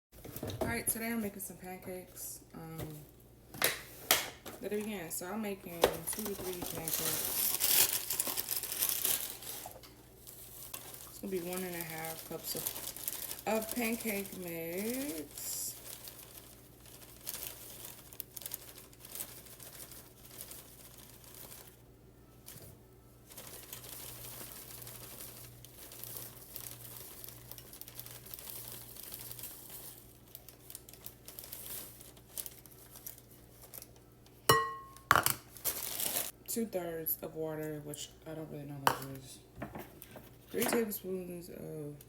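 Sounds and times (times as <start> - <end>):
packaging crinkling and rustling: 2.7 - 34.3, 35.4 - 36.4.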